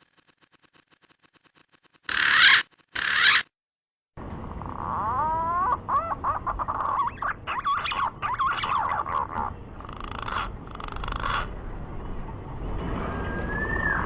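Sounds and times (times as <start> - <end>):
wavering whistled bird call: 13.2 - 14.0.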